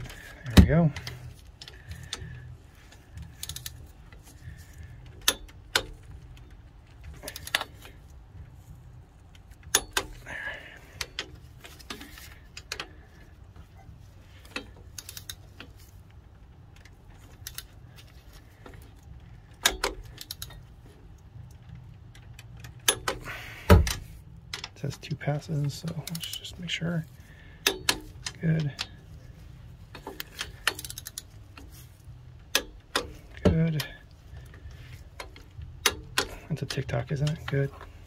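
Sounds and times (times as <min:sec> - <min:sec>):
torque wrench clicking: 0:03.1 - 0:07.8, 0:14.4 - 0:15.7, 0:18.9 - 0:24.8, 0:29.9 - 0:36.5.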